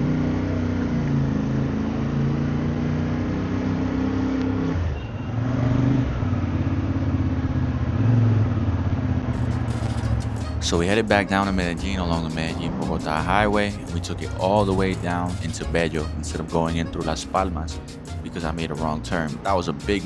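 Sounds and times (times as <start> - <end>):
motorcycle engine running: 6.1 - 10.7.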